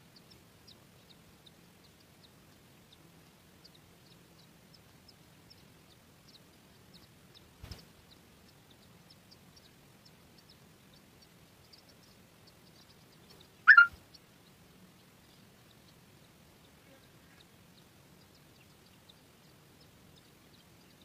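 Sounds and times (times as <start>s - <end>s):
faint high chirps: 3.6s - 14.2s
loud bird call: 13.7s - 14.0s.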